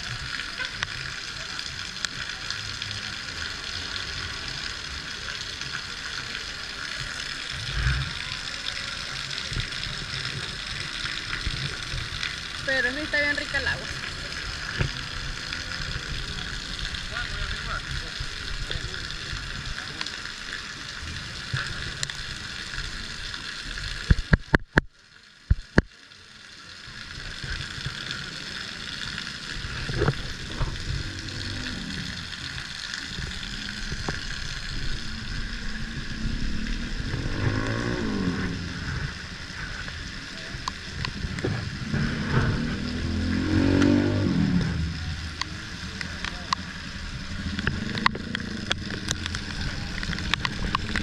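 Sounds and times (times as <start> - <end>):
rain and wind on microphone: 0.0 - 51.0
motorcycle engine revving: 35.8 - 39.0, 41.8 - 45.3.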